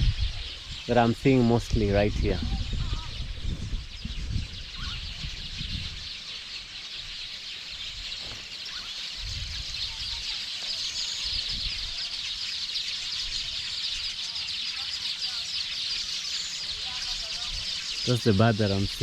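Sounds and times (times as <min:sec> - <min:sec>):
low rumbling on microphone: 0:00.0 - 0:06.2
small birds chattering and calling: 0:00.0 - 0:19.0.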